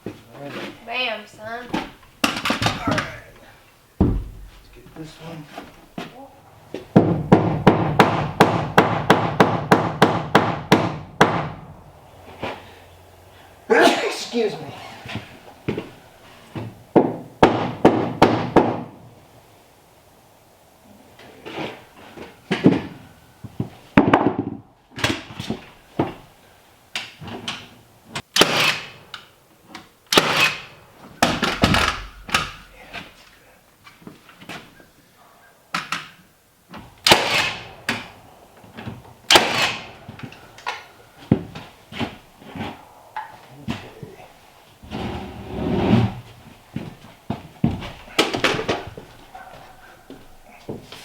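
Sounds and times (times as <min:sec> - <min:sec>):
knocks and thuds of lumber: 0:04.0 - 0:04.9, 0:05.6 - 0:12.7, 0:15.1 - 0:19.0, 0:22.0 - 0:26.3, 0:46.0 - 0:51.0.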